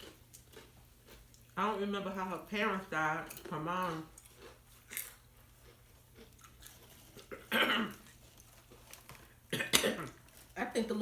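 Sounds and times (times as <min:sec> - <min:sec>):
chewing crunchy chips: 0:00.0 - 0:01.7, 0:02.8 - 0:10.6.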